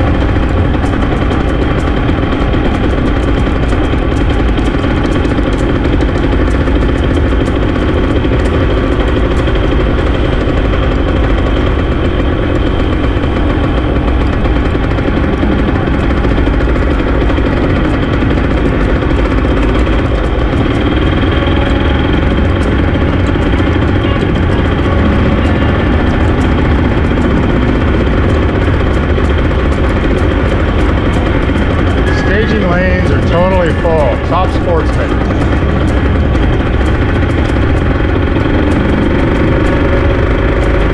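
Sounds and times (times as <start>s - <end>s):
small motorbike engine idling: 0.0s - 40.9s.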